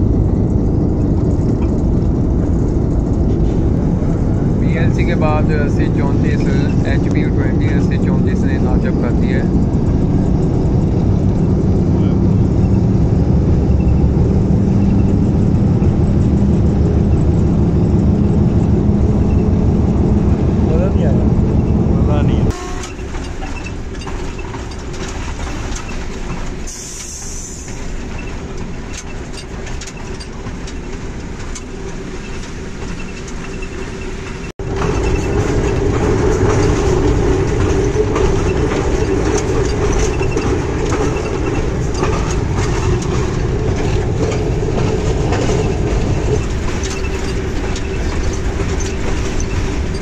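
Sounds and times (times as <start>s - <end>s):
wheels clicking over rail joints: 0.0s - 12.8s, 13.5s - 50.0s
diesel locomotive rumble: 0.0s - 50.0s.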